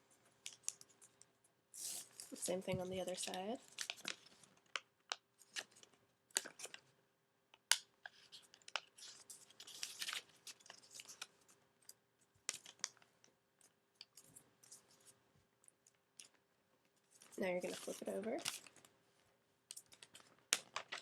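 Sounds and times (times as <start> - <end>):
paper crinkling and crackling: 1.8 - 4.8, 8.0 - 11.4, 12.5 - 13.1, 17.1 - 18.9, 19.7 - 21.0.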